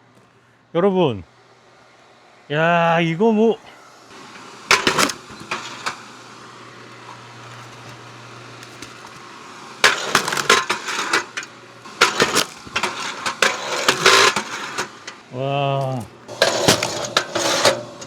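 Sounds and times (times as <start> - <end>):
log splitter motor hum: 3.7 - 18.0
wood cracking and snapping: 4.7 - 6.0, 7.0 - 14.8, 15.8 - 17.4.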